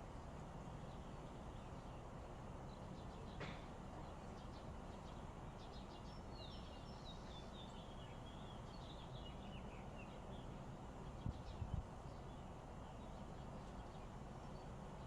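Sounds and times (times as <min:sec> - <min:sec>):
low background noise: 0:00.0 - 0:15.0
faint bird chirps: 0:02.7 - 0:10.5.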